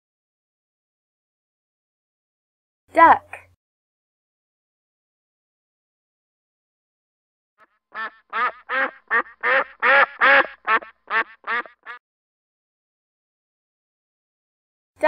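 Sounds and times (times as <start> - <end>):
duck quacking: 7.6 - 12.0.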